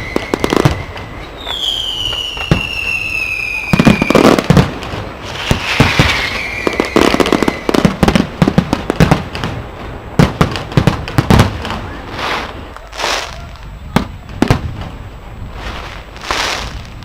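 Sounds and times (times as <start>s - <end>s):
firework whistling: 0.0s - 8.4s, 11.4s - 14.8s, 15.5s - 17.0s
fireworks bangs and cracks: 0.0s - 17.0s.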